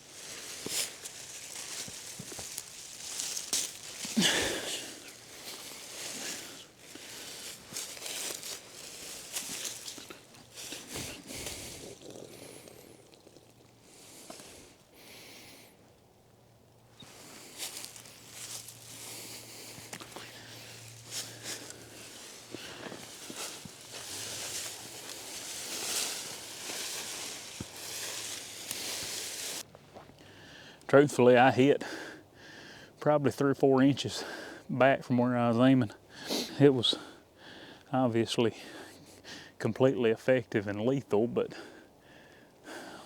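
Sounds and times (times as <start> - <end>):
dry leaves rustling and crunching: 0.0 - 12.6, 17.0 - 29.7.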